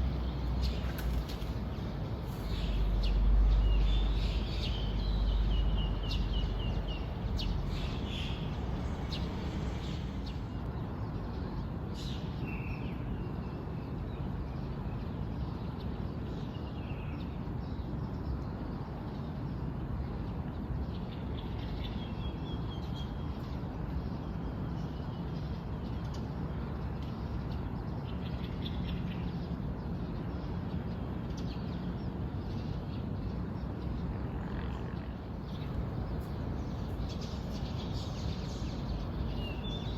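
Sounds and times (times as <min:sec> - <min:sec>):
small birds chirping: 0:00.0 - 0:10.7, 0:35.4 - 0:39.9.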